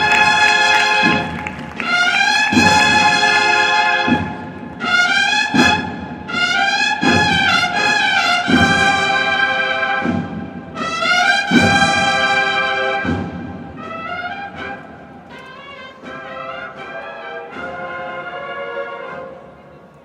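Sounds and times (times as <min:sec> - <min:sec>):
bugles playing held chords: 0:00.0 - 0:20.0
heavy drum strokes: 0:05.5 - 0:14.0.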